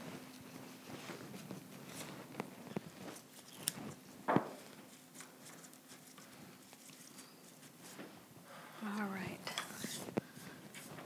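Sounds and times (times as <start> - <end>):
stem being snipped: 3.4 - 3.8.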